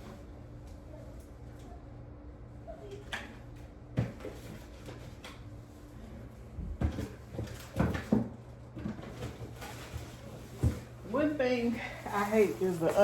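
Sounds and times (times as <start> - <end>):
knocks and clatter of objects: 6.6 - 10.9.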